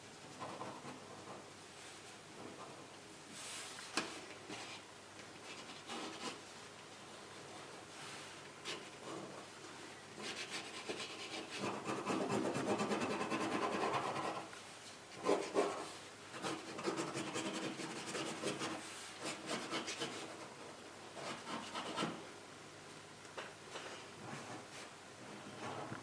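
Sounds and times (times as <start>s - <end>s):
pen scratching on paper: 16.4s - 20.3s.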